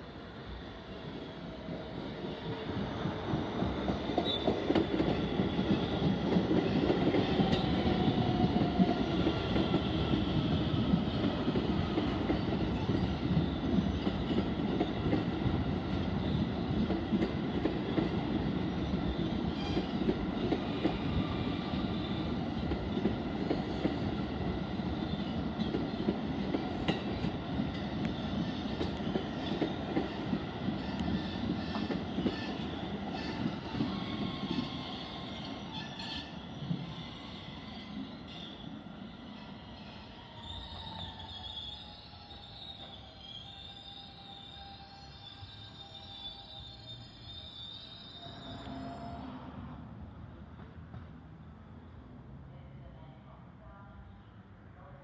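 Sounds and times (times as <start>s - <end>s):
train wheels rumbling on rails: 1.4s - 37.0s.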